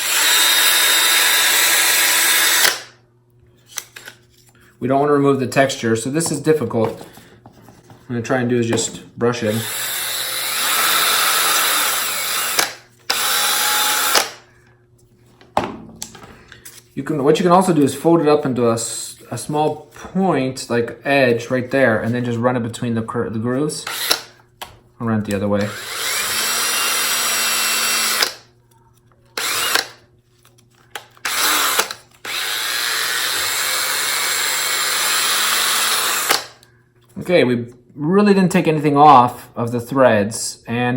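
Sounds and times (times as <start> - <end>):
cordless drill spinning: 0.0 - 2.9, 9.5 - 14.4, 23.8 - 24.3, 25.6 - 28.4, 29.4 - 30.0, 31.0 - 36.6.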